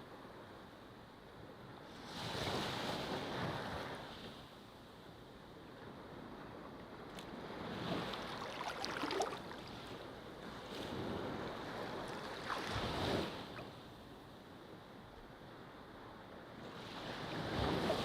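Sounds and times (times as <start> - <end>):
ocean waves breaking on shore: 6.0 - 14.4, 16.5 - 18.0.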